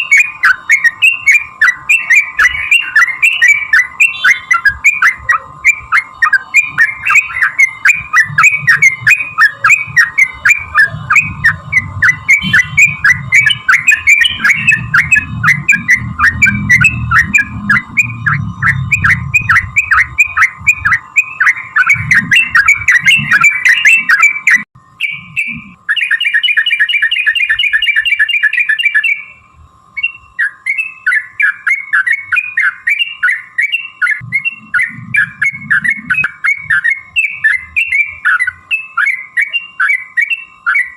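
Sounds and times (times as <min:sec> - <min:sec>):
bird chattering rapid bubbling notes: 0:00.0 - 0:29.2, 0:30.4 - 0:40.0
faint steady hum: 0:00.0 - 0:40.9.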